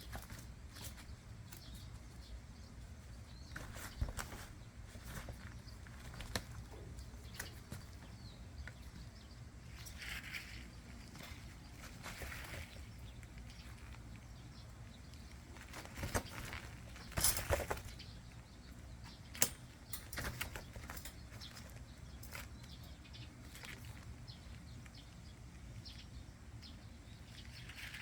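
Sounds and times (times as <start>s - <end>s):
kittens scrambling on umbrella: 3.5s - 6.7s, 15.4s - 18.0s.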